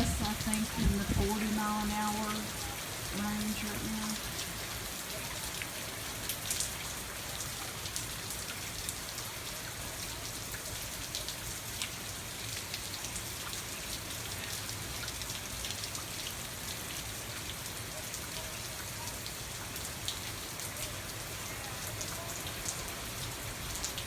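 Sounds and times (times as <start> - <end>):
rain hissing in wind: 0.0 - 24.0.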